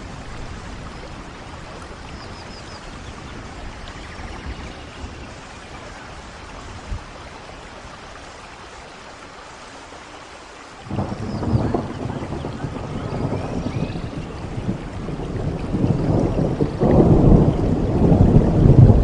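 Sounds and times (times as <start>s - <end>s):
rain: 0.0s - 19.0s
loud low thunder rumble: 10.9s - 19.0s.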